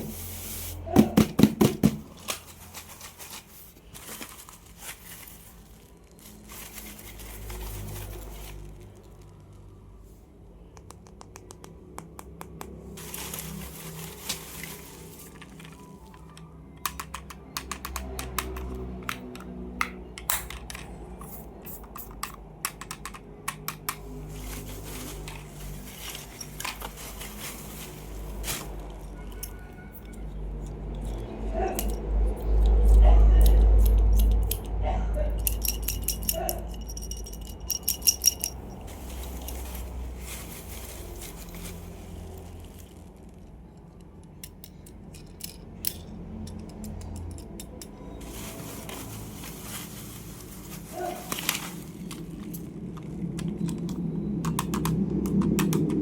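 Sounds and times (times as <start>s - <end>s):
packaging rustling: 1.6s - 9.7s, 12.7s - 16.4s, 24.0s - 29.3s, 38.3s - 43.4s, 48.2s - 53.4s
plastic toys clicking and tapping: 15.3s - 24.2s, 29.3s - 38.6s, 43.5s - 48.1s, 51.3s - 56.0s.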